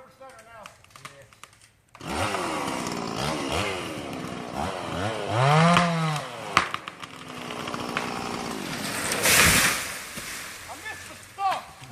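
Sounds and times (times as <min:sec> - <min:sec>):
chainsaw revving and idling: 0:01.9 - 0:09.8
sharp crack: 0:05.6 - 0:11.9.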